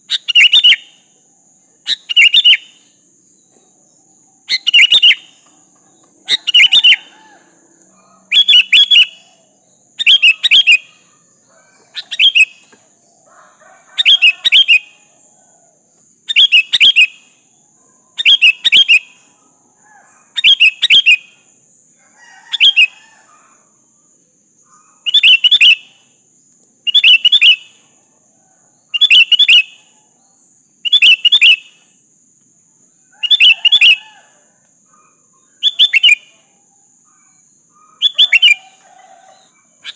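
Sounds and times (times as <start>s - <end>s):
bird chattering calls: 4.5s - 5.5s, 6.2s - 7.4s, 8.3s - 9.4s, 10.0s - 12.8s, 13.9s - 15.0s, 37.1s - 39.9s.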